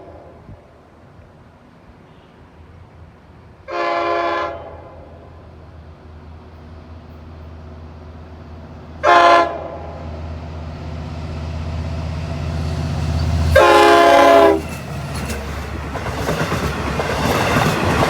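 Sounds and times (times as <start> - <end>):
diesel train engine drone: 0.0 - 18.0
train horn blasts: 3.7 - 5.2, 9.0 - 10.0, 13.4 - 14.7
rumble and clatter of train cars: 4.6 - 18.0.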